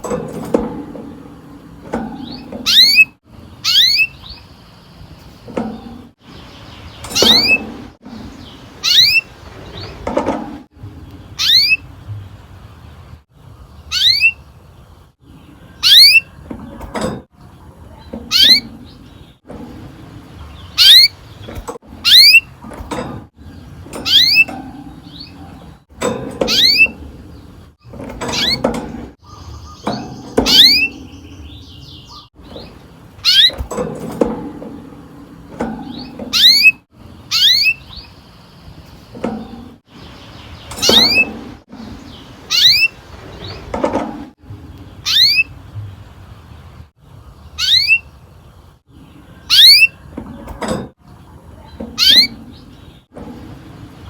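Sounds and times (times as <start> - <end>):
canary calling: 2.2 - 5.6, 6.2 - 10.0, 11.2 - 12.0, 13.8 - 14.7, 15.3 - 16.8, 17.5 - 34.2, 35.6 - 43.7, 44.8 - 45.6, 47.5 - 48.2, 49.0 - 50.1, 51.6 - 53.0.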